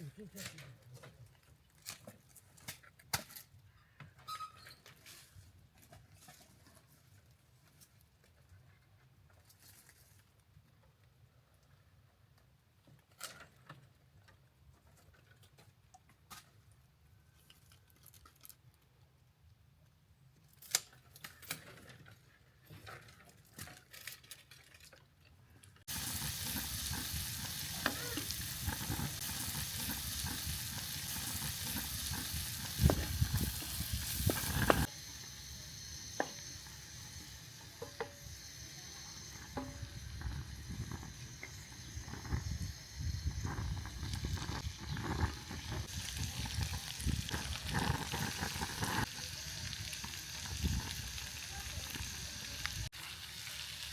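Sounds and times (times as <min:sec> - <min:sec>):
food sizzling in a hot pan: 0:25.9 - 0:53.9.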